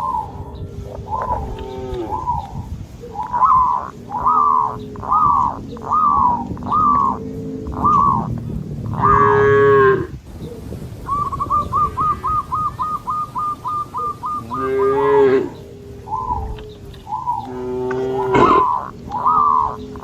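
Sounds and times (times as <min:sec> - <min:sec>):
cattle mooing: 0:01.2 - 0:02.4, 0:03.8 - 0:10.2, 0:14.3 - 0:20.0.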